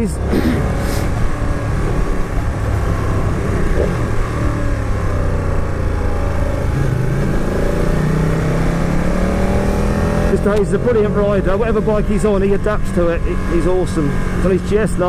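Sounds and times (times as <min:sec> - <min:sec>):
wind rush: 0:00.6 - 0:06.1
motorcycle engine running: 0:00.6 - 0:08.0.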